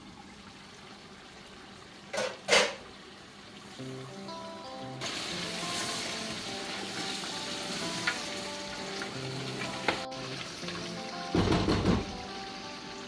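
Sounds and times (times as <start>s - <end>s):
chicken sizzling in a metal pot: 3.7s - 13.0s.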